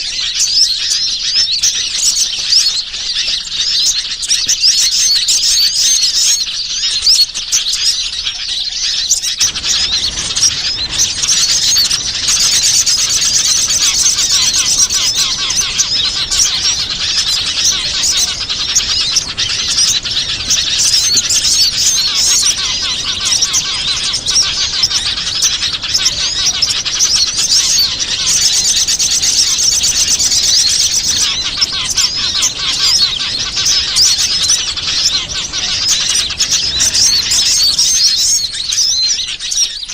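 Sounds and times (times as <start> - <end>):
small birds chirping and twittering: 0.0 - 39.9.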